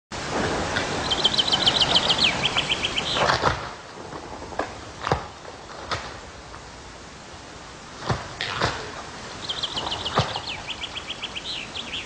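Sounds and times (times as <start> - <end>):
rushing noise: 0.1 - 12.0
small bird singing trill: 1.0 - 3.3, 9.3 - 12.0.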